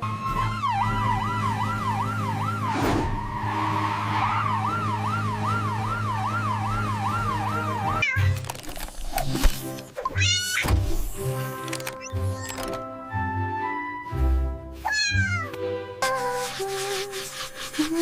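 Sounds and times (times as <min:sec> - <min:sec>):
emergency siren wailing: 0:00.0 - 0:08.0.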